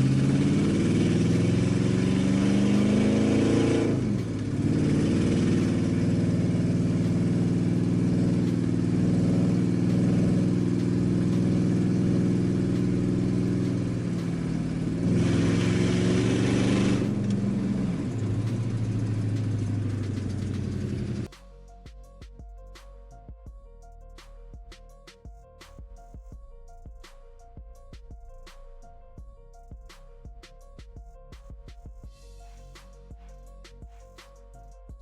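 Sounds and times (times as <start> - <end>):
car engine running and revving: 0.0 - 21.3.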